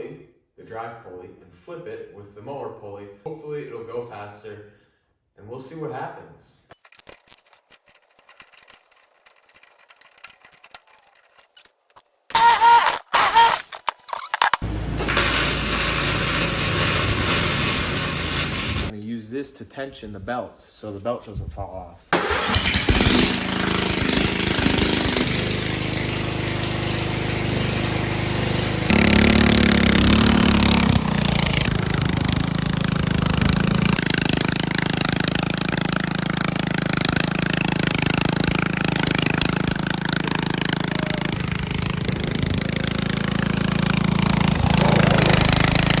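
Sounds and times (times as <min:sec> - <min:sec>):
garden tractor engine running: 0:12.4 - 0:19.0, 0:22.2 - 0:46.0.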